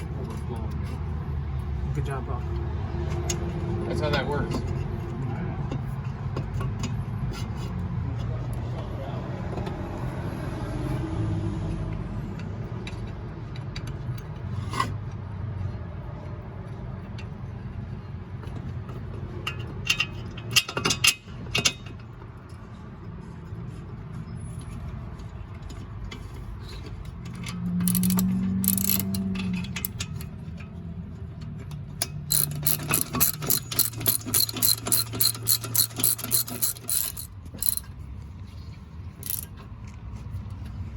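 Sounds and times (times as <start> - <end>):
metal tools clinking and scraping: 26.2 - 30.8, 32.0 - 37.9, 39.2 - 39.7.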